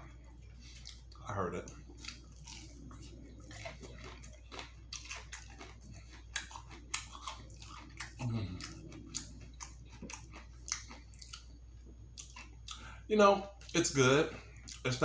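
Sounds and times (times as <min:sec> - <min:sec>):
person chewing with wet smacks: 0:00.0 - 0:12.9, 0:13.5 - 0:15.0
short low vocal hum: 0:08.1 - 0:09.4.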